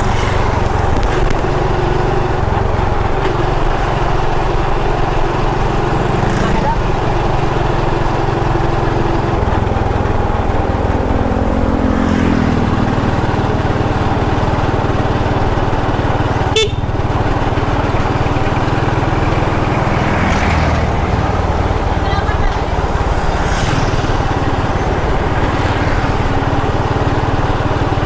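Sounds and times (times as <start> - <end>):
motorbike engine running: 0.0 - 28.0
wind rushing over microphone: 19.6 - 27.8.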